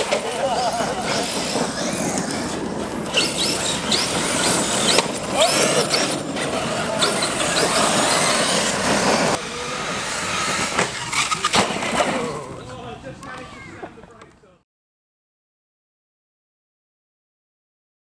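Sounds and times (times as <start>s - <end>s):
rc truck electric motor whining: 0.0s - 12.6s
tyres scrabbling on dirt: 0.0s - 14.5s.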